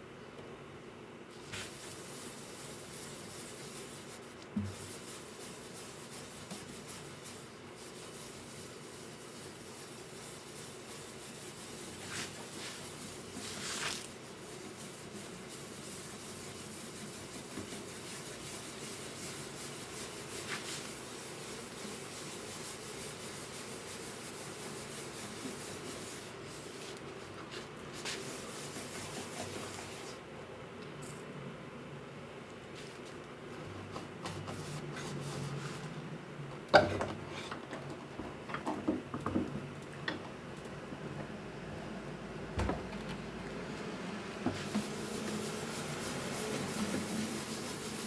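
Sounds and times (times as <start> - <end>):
steady rubbing: 44.6 - 48.0.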